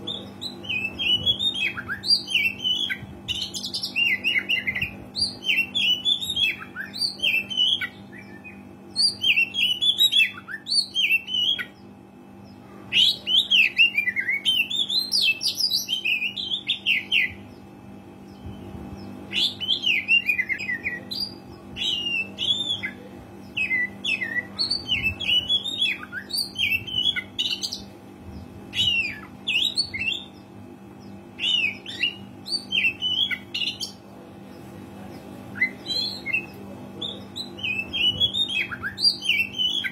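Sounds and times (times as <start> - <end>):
steady low hum: 0.0 - 39.9
bird singing whistled phrases: 19.3 - 23.0, 31.4 - 34.0, 35.6 - 39.9.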